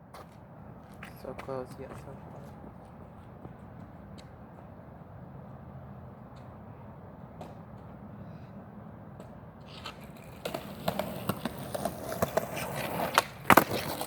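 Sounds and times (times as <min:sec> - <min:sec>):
skateboard wheels rolling on concrete: 0:00.0 - 0:14.0
skateboard hitting the ground: 0:09.2 - 0:14.0.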